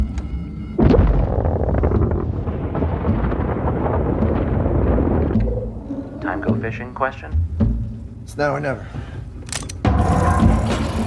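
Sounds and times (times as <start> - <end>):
loud blast with deep rumble: 0.8 - 6.1.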